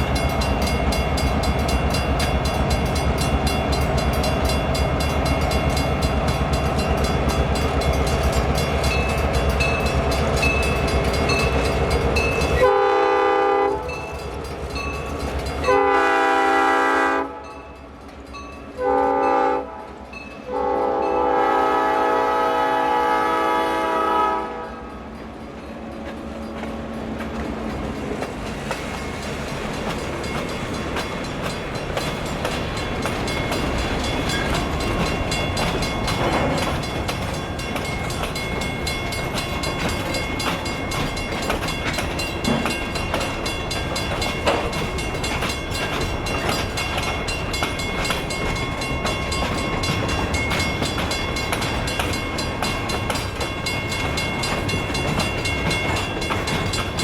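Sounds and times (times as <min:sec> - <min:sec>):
train wheels clicking over rail joints: 0:00.0 - 0:16.3, 0:24.1 - 0:57.0.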